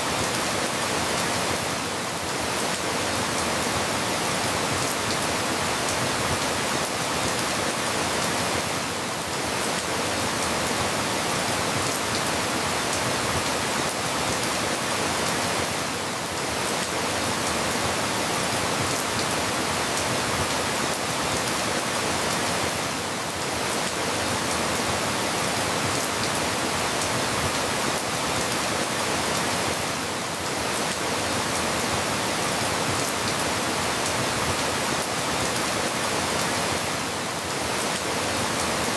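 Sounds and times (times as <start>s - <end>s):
steady dense rain: 0.0s - 38.9s.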